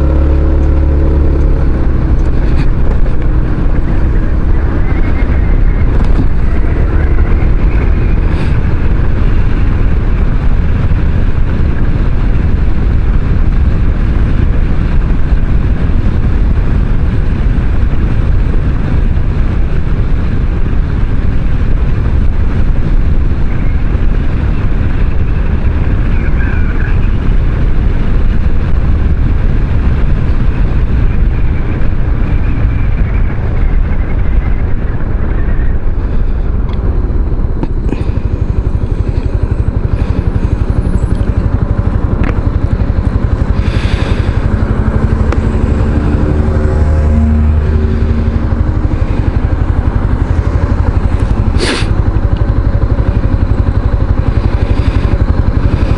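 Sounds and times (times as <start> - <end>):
scooter engine: 0.0 - 55.9
wind rumble on microphone: 0.0 - 55.9.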